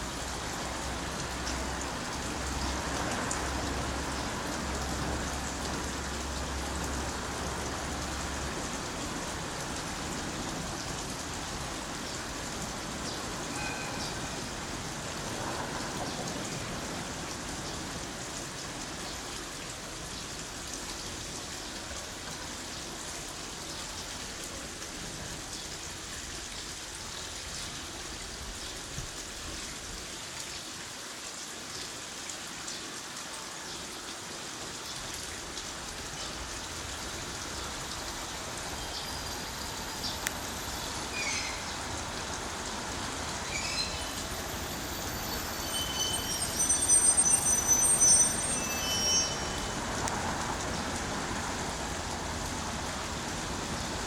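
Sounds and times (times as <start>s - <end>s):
steady rain falling: 0.0s - 54.0s
train wheels squealing on rails: 13.2s - 17.0s, 38.0s - 50.5s.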